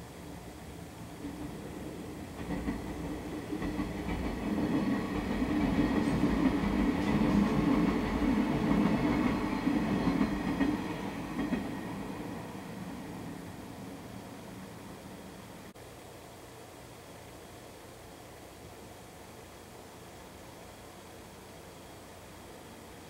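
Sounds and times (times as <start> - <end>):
passenger train rumbling past: 0.0 - 15.8.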